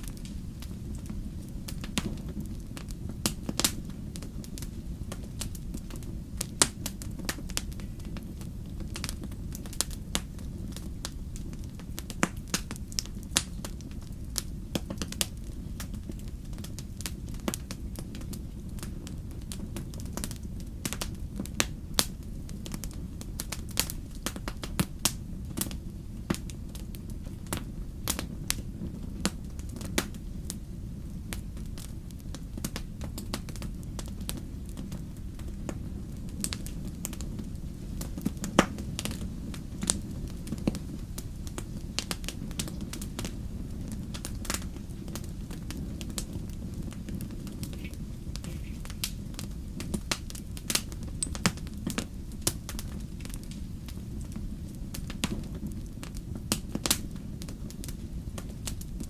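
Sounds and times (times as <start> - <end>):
low rumble of flame: 0.0 - 59.0
wood fire crackling: 0.0 - 59.0.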